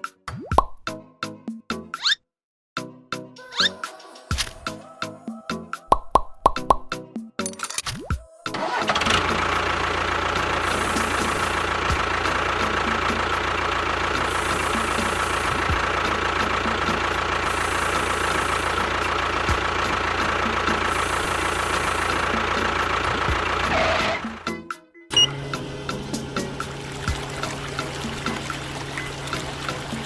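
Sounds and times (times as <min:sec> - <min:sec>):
motor whining: 0:08.6 - 0:24.4.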